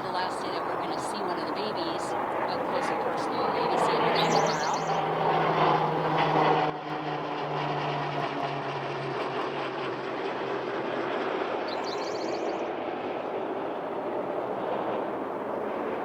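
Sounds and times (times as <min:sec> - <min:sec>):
aircraft noise: 0:00.0 - 0:16.0
low engine drone: 0:00.0 - 0:16.0
road traffic hum: 0:00.0 - 0:16.0
small bird chirping: 0:04.0 - 0:05.0, 0:11.7 - 0:12.6.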